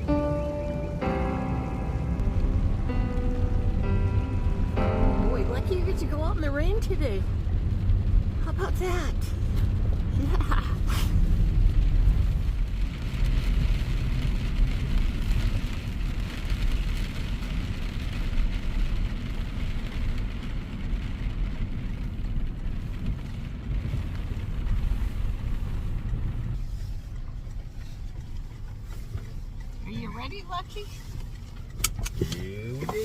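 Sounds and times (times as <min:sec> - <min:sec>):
car road rumble: 0:00.0 - 0:33.0
tyre hiss on wet road: 0:10.8 - 0:12.4.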